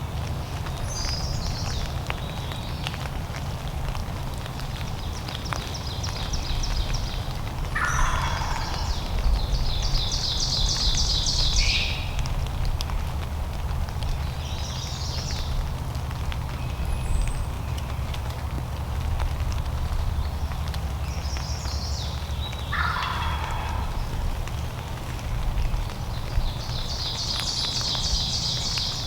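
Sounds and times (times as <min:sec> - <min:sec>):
wild turkey calling: 0:06.6 - 0:12.2, 0:22.2 - 0:25.0.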